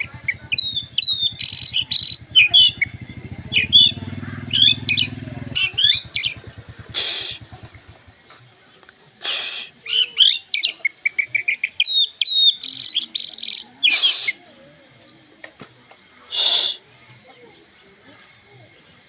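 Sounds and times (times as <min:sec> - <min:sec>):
wild birds chirping and singing: 0:00.0 - 0:19.0
harsh hissing burst: 0:06.2 - 0:08.1, 0:09.2 - 0:09.8, 0:13.8 - 0:14.5, 0:16.2 - 0:16.9.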